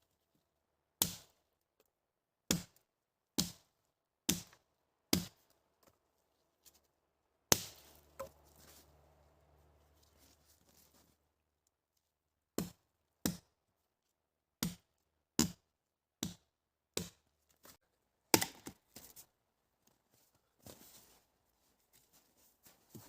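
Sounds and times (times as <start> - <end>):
wood being chopped: 1.0 - 1.3, 2.5 - 2.8, 3.4 - 3.7, 4.3 - 5.4, 7.5 - 8.4, 12.6 - 13.5, 14.6 - 15.6, 16.2 - 17.2, 18.3 - 18.8.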